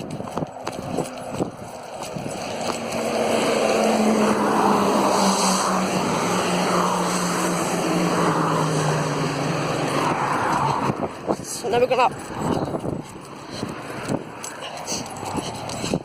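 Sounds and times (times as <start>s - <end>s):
engine droning past: 0.8s - 11.3s.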